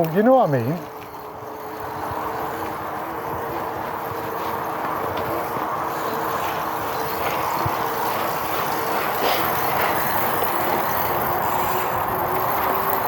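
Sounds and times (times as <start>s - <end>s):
faint ticks: 0.0s - 2.8s
tyre noise: 0.0s - 13.0s
wind noise: 0.8s - 13.0s.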